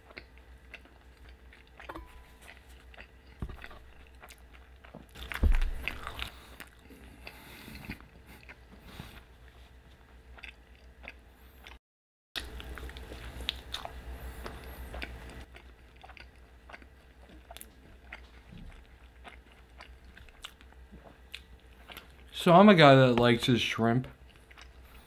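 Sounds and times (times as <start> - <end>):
chewing and wet mouth sounds: 0.0 - 11.8, 12.4 - 22.4, 24.1 - 25.0
loud thump: 5.4 - 5.9.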